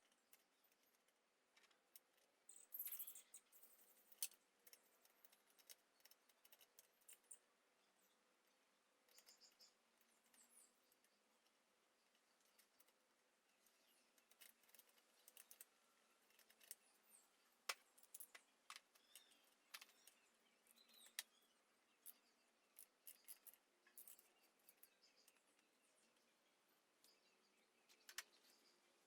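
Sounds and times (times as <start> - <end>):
faint chirps: 2.4 - 29.0.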